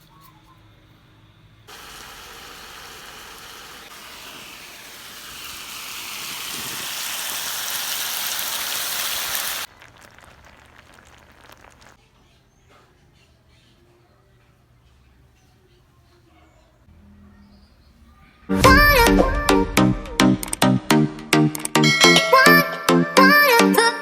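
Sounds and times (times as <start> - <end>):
steady rushing hiss: 1.7 - 12.0.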